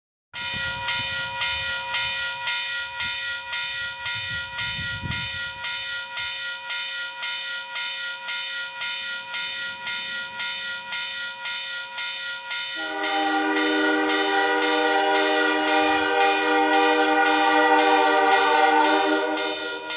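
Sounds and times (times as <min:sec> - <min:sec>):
low multi-note horn chord: 0:12.8 - 0:19.7
locomotive air horn blast: 0:12.8 - 0:19.9.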